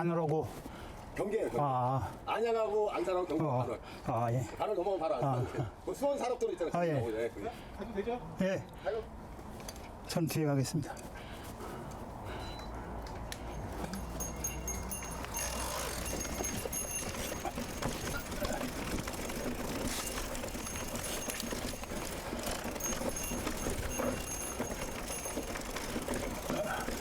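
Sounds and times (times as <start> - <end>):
bike tyres crunching on trail: 11.1 - 27.0
bike rattling clicks: 12.6 - 27.0.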